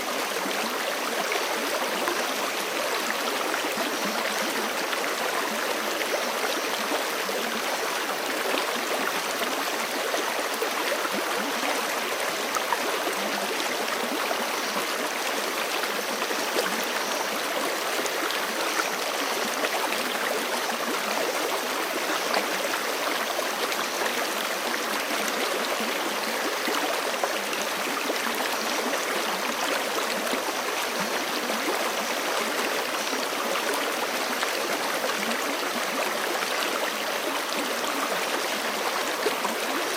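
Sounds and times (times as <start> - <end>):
creek running over rocks: 0.0 - 39.9.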